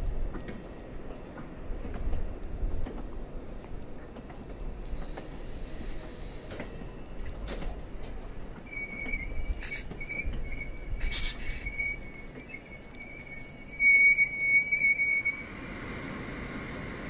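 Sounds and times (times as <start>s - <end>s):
wheels rumbling on rails: 0.0s - 17.0s
high-pitched wheel squeal: 8.0s - 15.8s.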